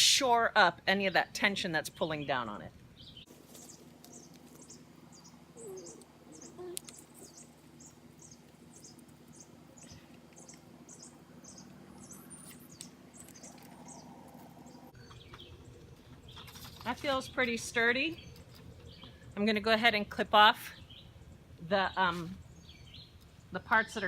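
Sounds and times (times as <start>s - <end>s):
small bird chirping: 3.0s - 16.7s.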